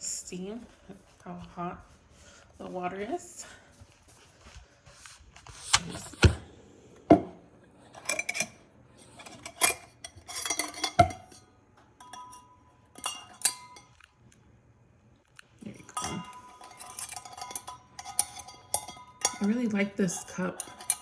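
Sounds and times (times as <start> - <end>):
mug and metal infuser clinking: 8.0 - 11.4, 12.0 - 13.9, 15.8 - 21.0.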